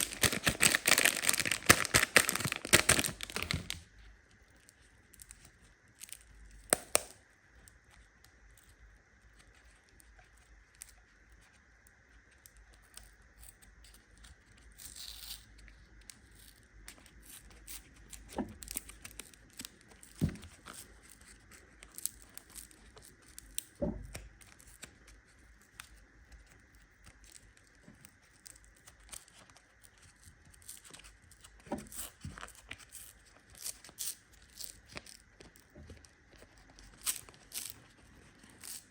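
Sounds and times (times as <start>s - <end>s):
plastic wrapper crinkling: 0.0s - 4.0s, 18.6s - 23.6s, 28.3s - 38.9s.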